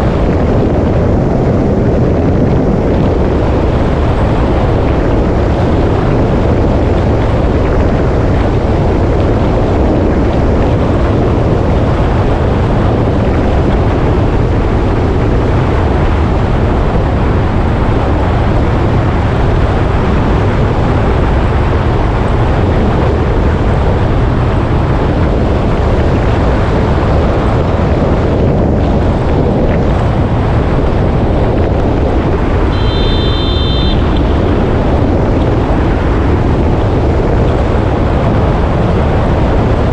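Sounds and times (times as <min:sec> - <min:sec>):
motorcycle cruising: 0:00.0 - 0:39.9
wind buffeting microphone: 0:00.0 - 0:39.9
brief high tone: 0:32.7 - 0:34.6.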